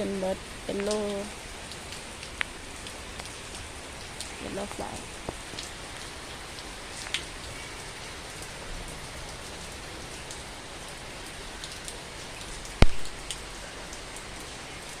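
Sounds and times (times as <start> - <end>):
heavy rain falling: 0.0 - 15.0
water drips: 0.0 - 15.0
sharp loud tap: 12.8 - 13.1.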